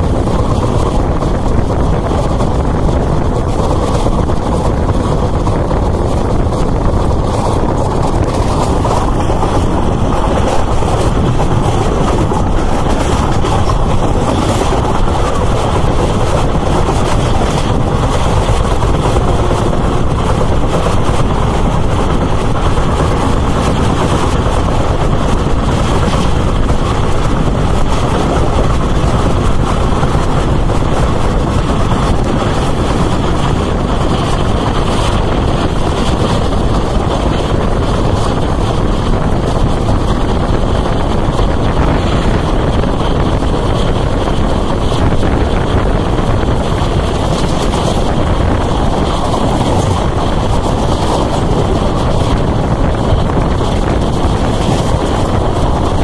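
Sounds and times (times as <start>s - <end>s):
train wheels rushing on rails: 0.0s - 56.0s.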